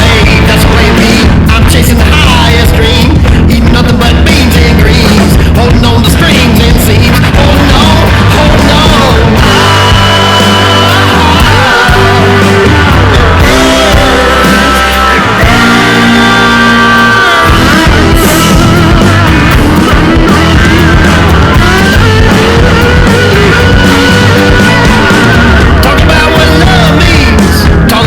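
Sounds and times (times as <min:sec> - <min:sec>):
person singing: 0:00.0 - 0:28.0
rock band playing: 0:00.0 - 0:28.0.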